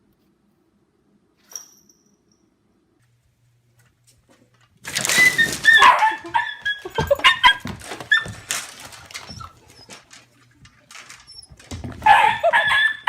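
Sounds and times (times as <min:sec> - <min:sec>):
dog barking and yelping: 0:05.5 - 0:08.6, 0:12.0 - 0:13.0.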